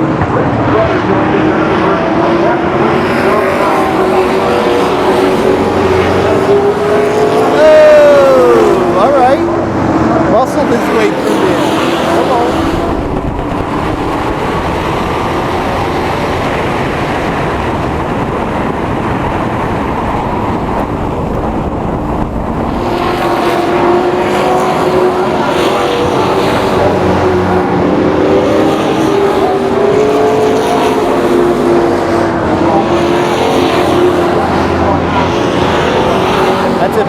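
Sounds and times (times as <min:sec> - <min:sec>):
race truck engines passing: 0:00.0 - 0:37.0.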